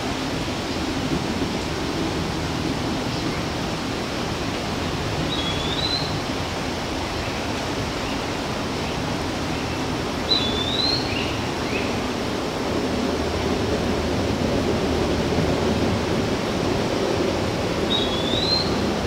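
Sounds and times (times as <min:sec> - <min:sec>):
outdoor background rush: 0:00.0 - 0:19.0
bird whistled call: 0:05.3 - 0:06.2, 0:10.3 - 0:11.9, 0:17.9 - 0:18.8.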